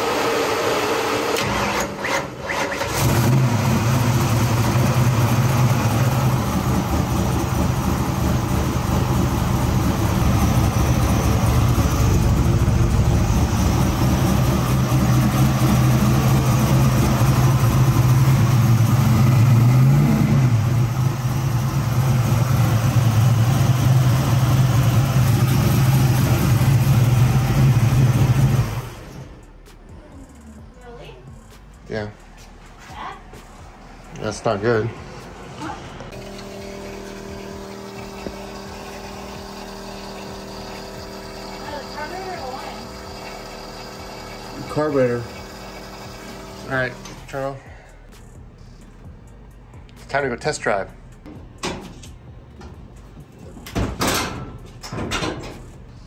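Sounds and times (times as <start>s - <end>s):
engine revving: 0.0s - 29.5s, 34.1s - 47.6s
car engine cranking: 1.0s - 29.6s, 36.0s - 47.5s
car engine idling: 1.0s - 32.4s, 33.3s - 50.0s.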